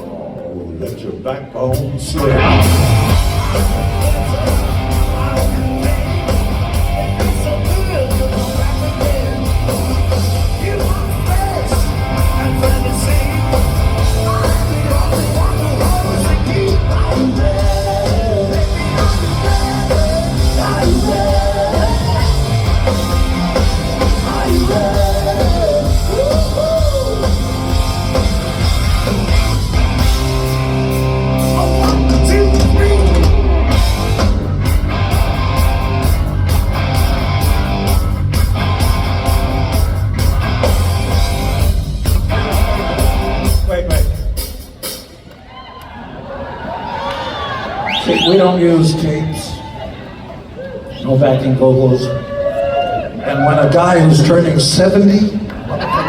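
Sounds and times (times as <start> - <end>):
distorted electric guitars: 0.0 - 44.9
pitch-bending guitar lead line: 1.7 - 44.4
drum kit: 1.7 - 45.3.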